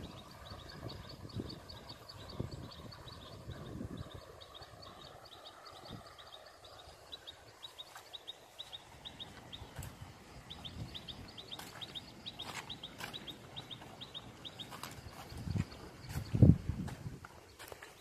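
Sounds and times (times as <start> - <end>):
wind rumble on microphone: 0.0 - 7.1, 9.0 - 12.4, 14.1 - 17.4
small bird chirping: 0.0 - 16.6.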